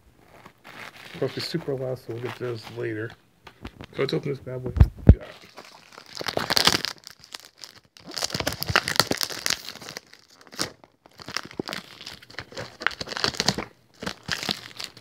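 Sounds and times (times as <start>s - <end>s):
packaging tearing and crinkling: 0.2s - 1.6s, 5.2s - 15.0s.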